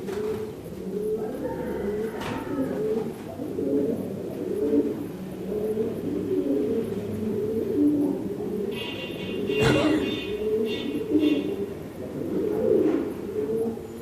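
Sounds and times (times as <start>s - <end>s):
pigeons cooing: 0.0s - 14.0s.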